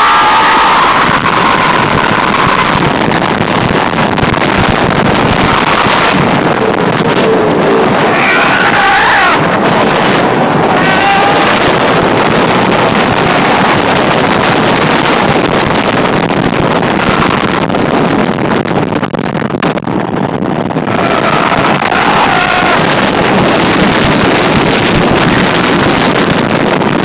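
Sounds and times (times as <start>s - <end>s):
riders yelling: 0.0s - 2.9s, 5.2s - 14.6s, 20.9s - 23.5s
wind rushing over microphone: 0.0s - 27.0s.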